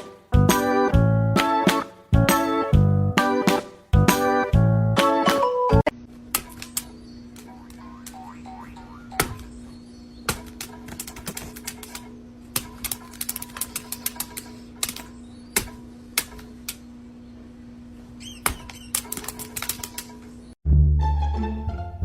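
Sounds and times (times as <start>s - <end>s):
steady low hum: 5.9s - 18.7s.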